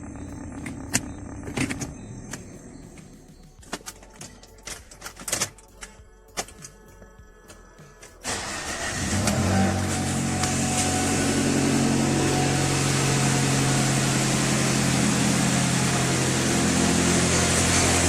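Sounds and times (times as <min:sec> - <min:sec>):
car engine running: 0:00.0 - 0:05.0, 0:08.2 - 0:18.0.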